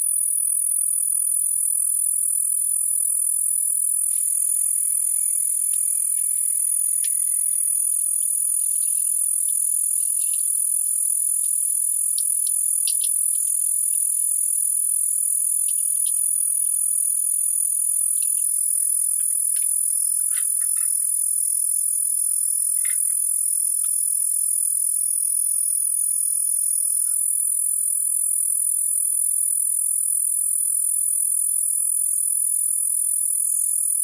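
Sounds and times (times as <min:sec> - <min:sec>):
shrill insect chorus: 0:03.7 - 0:27.7
faint ticks: 0:04.0 - 0:14.2, 0:15.6 - 0:16.9, 0:18.0 - 0:21.3, 0:22.2 - 0:24.5.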